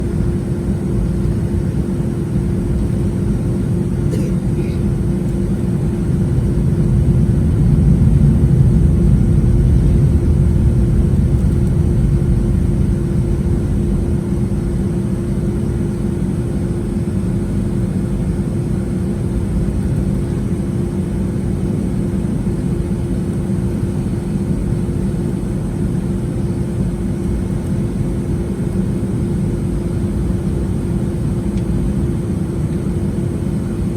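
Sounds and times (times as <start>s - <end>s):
jet engines rumbling: 0.0s - 33.9s.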